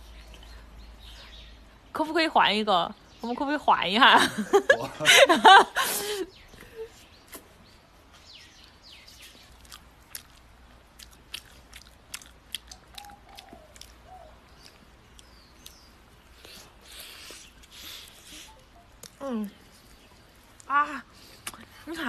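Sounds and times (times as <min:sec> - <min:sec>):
mouth clicks and smacks: 0:09.2 - 0:19.2, 0:21.3 - 0:21.8
person chewing: 0:09.2 - 0:21.7.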